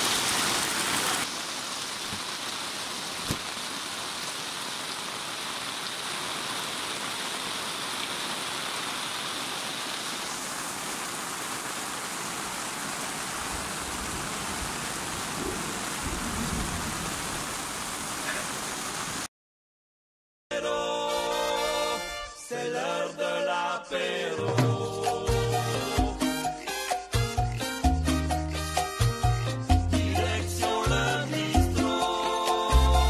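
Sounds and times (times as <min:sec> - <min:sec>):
heavy rain on an awning: 0:00.0 - 0:19.3
runoff pouring off awning: 0:00.0 - 0:19.3.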